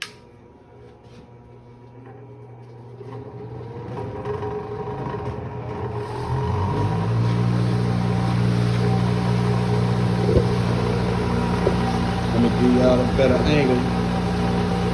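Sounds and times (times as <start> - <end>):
bench grinder switch click: 0.0 - 0.3
bench grinder whining: 3.2 - 14.9.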